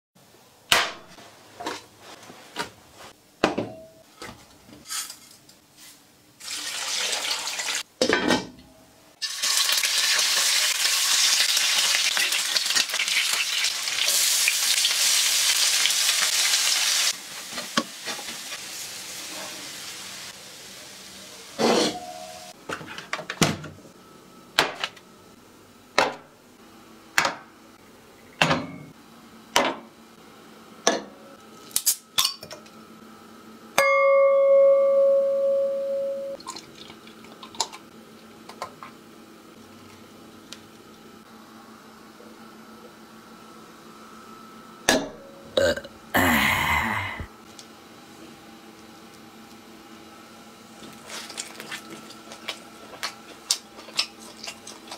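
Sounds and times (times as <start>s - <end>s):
meat sizzling in oil: 6.4s - 7.8s, 9.2s - 21.1s.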